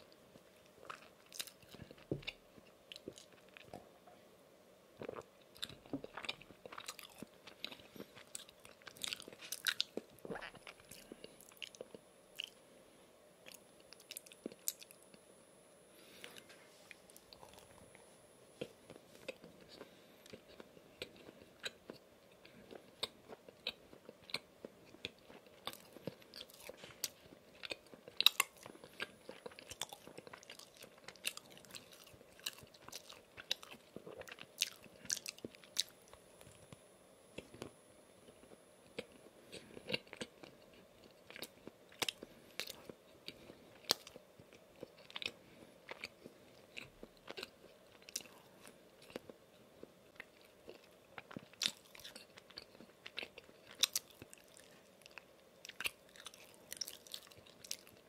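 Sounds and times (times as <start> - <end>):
chewing with mouth clicks: 0.6 - 3.8, 5.0 - 12.6, 18.6 - 58.0.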